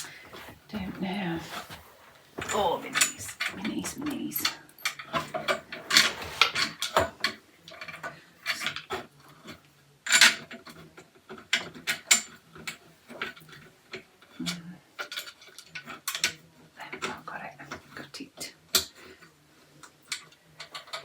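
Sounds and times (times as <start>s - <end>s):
shoe rack parts clicking and knocking: 0.0s - 14.4s, 19.8s - 21.0s.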